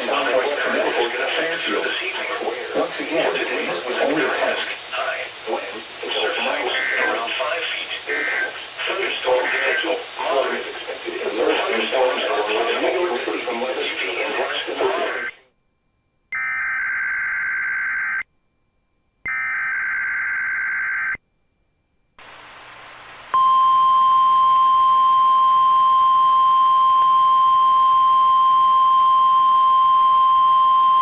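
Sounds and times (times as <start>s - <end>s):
radio hiss: 0.0s - 15.5s, 22.2s - 23.4s
steady warning alarm tone: 14.5s - 22.2s, 23.4s - 31.0s.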